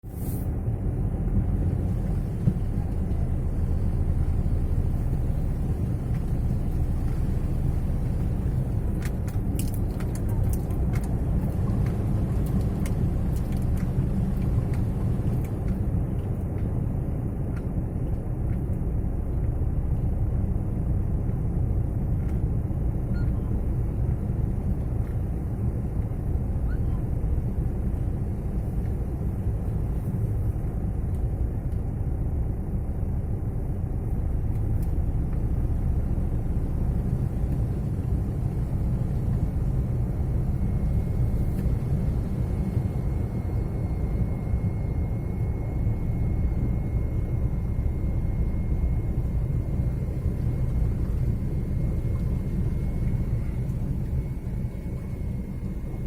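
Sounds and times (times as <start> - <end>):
vehicle engine rumble: 0.0 - 56.0.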